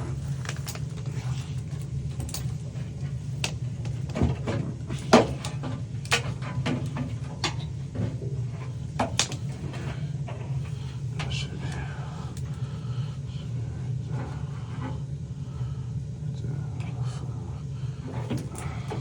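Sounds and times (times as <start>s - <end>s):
steady low hum: 0.0s - 19.0s
tools and metal parts clicking: 0.3s - 1.1s.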